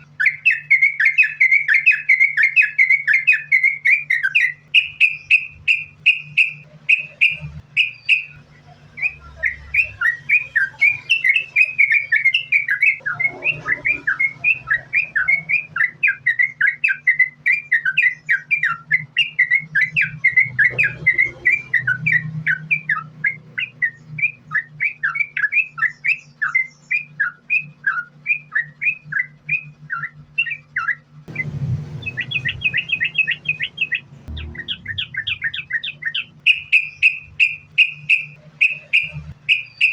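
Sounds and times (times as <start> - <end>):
bird singing chirping notes: 0.0 - 39.9
low hum: 27.8 - 39.6.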